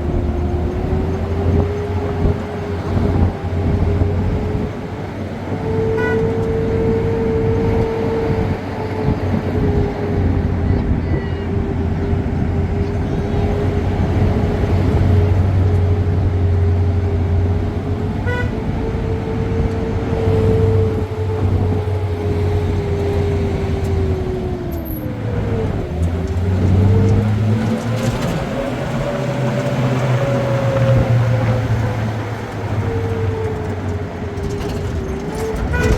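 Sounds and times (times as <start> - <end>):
road noise: 0.0 - 35.9
vehicle engine running: 0.0 - 35.9
short horn toot: 6.0 - 6.5, 18.2 - 18.7, 35.6 - 35.9.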